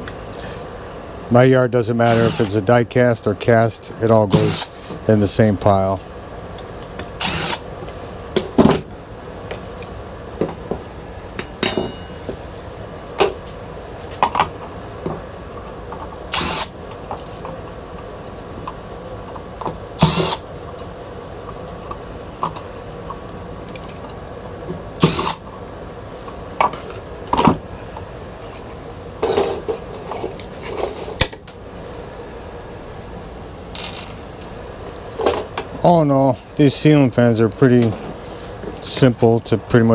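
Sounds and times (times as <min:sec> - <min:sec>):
power drill spurts: 0:02.0 - 0:02.7, 0:04.3 - 0:04.8, 0:07.2 - 0:07.6, 0:16.3 - 0:16.7, 0:20.0 - 0:20.4, 0:25.0 - 0:25.4
metal parts clinking: 0:33.8 - 0:34.2.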